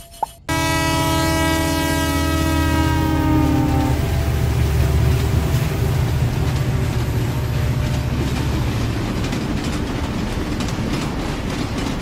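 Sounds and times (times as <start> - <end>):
toy train rumbling on track: 3.5 - 12.0.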